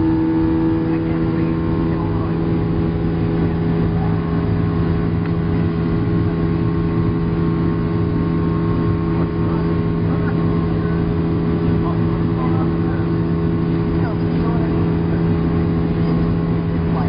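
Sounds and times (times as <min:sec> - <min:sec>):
jet engines droning in cabin: 0:00.0 - 0:17.0.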